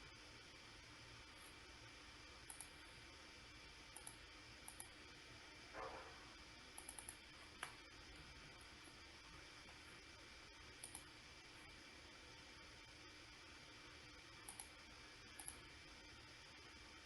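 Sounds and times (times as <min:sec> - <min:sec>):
computer mouse clicks: 0:02.4 - 0:02.8, 0:03.9 - 0:05.0, 0:06.7 - 0:07.8, 0:10.8 - 0:11.1, 0:14.4 - 0:15.6.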